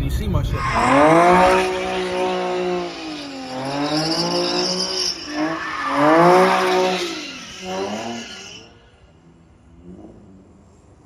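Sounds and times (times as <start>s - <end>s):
tyres squealing: 0.4s - 8.8s
car engine revving hard: 0.5s - 8.9s.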